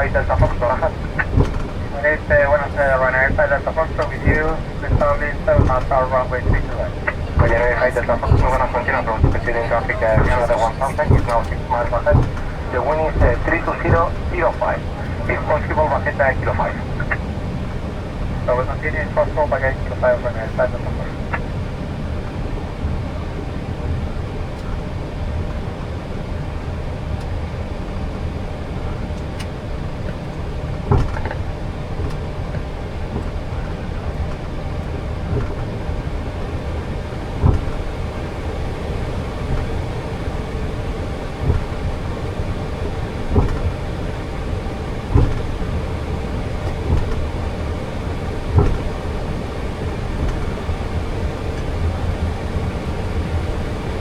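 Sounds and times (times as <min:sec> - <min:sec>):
cockpit rumble and hiss: 0:00.0 - 0:54.0
short thumps: 0:45.1 - 0:45.6.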